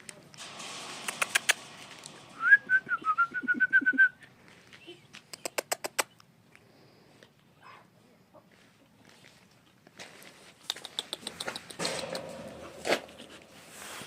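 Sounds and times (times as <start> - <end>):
wavering whistle: 2.4 - 4.2
sharp clicks: 5.2 - 6.3.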